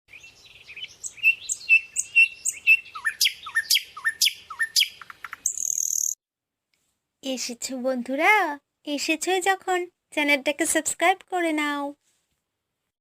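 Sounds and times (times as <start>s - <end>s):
bird call of sweeping notes: 0.1s - 6.2s
bird chirping: 0.1s - 6.2s.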